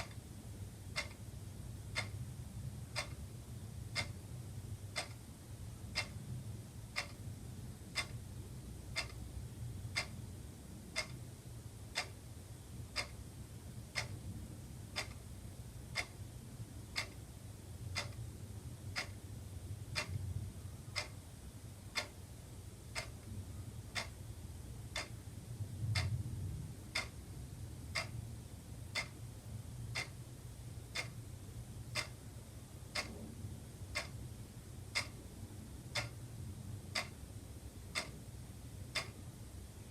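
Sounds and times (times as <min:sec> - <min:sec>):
wall clock ticking: 0:00.0 - 0:00.2, 0:00.8 - 0:07.3, 0:07.9 - 0:09.3, 0:09.9 - 0:10.3, 0:10.9 - 0:15.3, 0:15.9 - 0:19.2, 0:19.8 - 0:21.2, 0:21.8 - 0:22.2, 0:22.8 - 0:25.3, 0:26.0 - 0:26.2, 0:26.9 - 0:27.2, 0:27.9 - 0:28.2, 0:28.9 - 0:31.3, 0:31.9 - 0:33.2, 0:33.8 - 0:34.3, 0:34.9 - 0:36.3, 0:36.9 - 0:37.3, 0:37.9 - 0:39.3.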